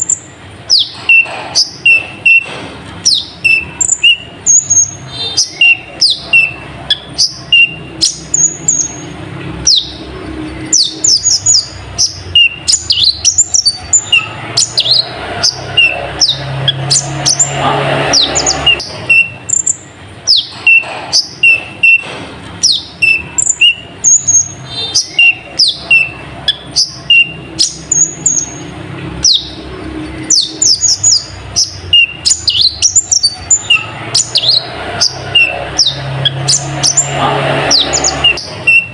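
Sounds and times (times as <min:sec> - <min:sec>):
sunbird singing high chirps: 0:03.1 - 0:17.6.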